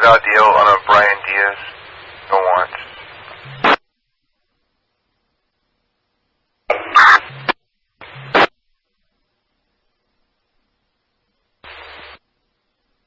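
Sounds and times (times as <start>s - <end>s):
radio squelch burst: 0.0s - 3.8s, 6.7s - 8.5s, 11.6s - 12.2s
radio static and garbled transmission: 0.0s - 3.8s, 6.7s - 8.5s, 11.6s - 12.2s.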